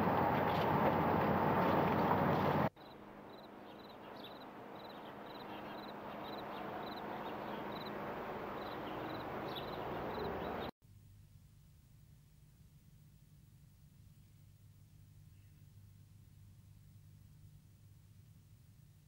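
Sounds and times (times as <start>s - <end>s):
small birds chirping: 2.8s - 10.7s.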